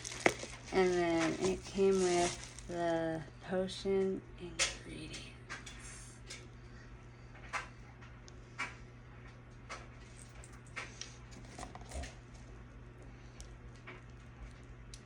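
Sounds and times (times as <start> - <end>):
light clicks and taps of packaging: 0.0 - 2.7
steady low hum: 0.0 - 15.0.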